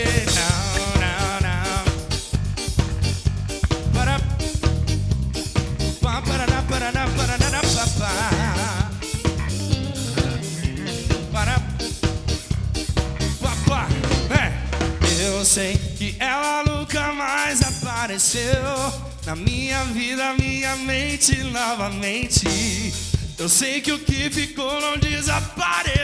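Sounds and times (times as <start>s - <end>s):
drum kit steady beat: 0.0s - 26.0s
guitar: 0.0s - 26.0s.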